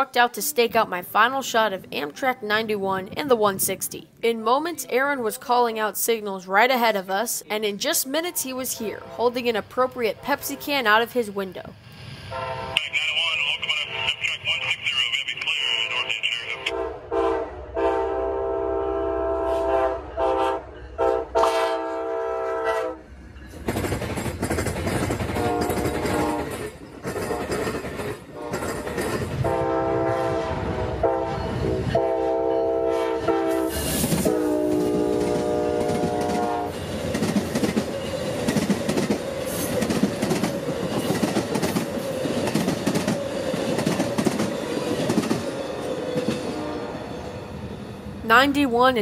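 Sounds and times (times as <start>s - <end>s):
locomotive air horn blasts: 12.3s - 12.9s, 16.7s - 23.0s, 25.4s - 26.5s, 29.4s - 36.8s
wheels clacking over rail joints: 23.5s - 29.6s.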